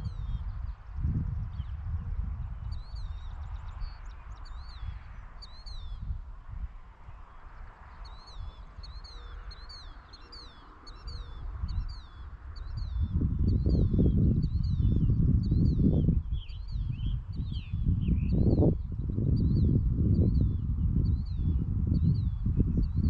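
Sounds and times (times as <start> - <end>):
small birds chirping: 0.0 - 6.2, 7.1 - 23.0.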